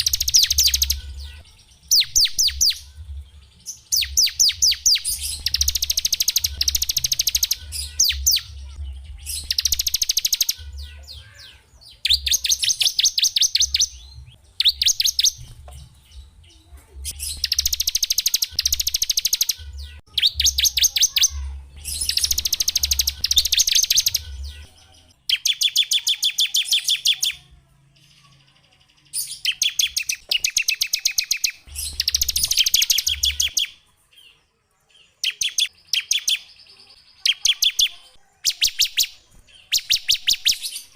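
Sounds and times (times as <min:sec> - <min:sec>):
songbird trilling: 0:00.0 - 0:02.9, 0:03.9 - 0:08.6, 0:09.2 - 0:15.4, 0:17.1 - 0:24.7.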